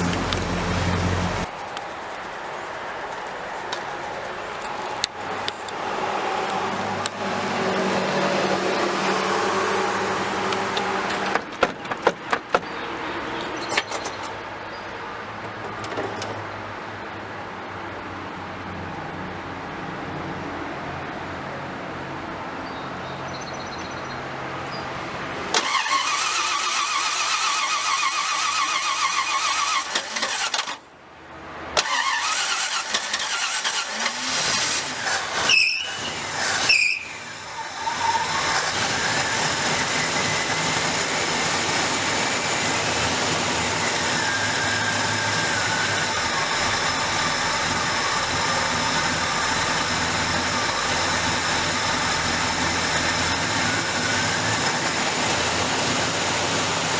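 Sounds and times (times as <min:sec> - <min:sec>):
car engine running: 0:00.0 - 0:02.7
engine starter cranking: 0:25.5 - 0:30.8, 0:31.8 - 0:37.0.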